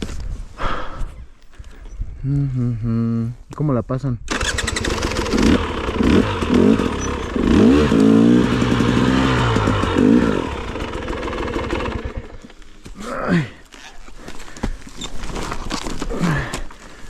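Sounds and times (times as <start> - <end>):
dirt bike engine revving: 4.3 - 12.5.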